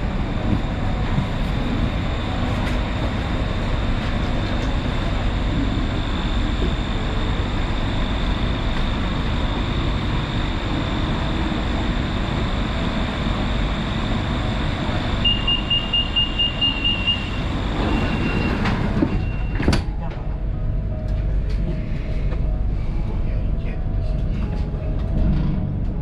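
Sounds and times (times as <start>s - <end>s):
train noise with high whine: 0.0s - 26.0s
door warning beeps: 15.2s - 19.8s.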